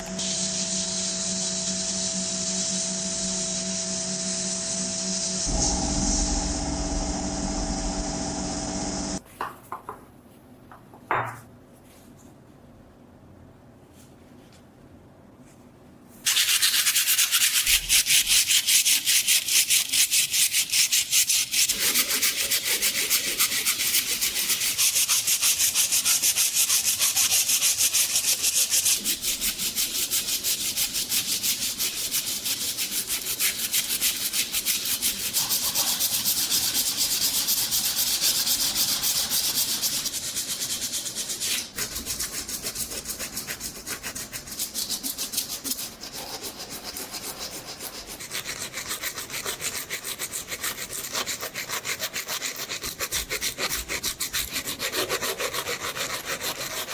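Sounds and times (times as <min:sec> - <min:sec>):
motor hum: 0:00.0 - 0:09.2
sandpaper rubbing on steel: 0:16.2 - 0:56.9.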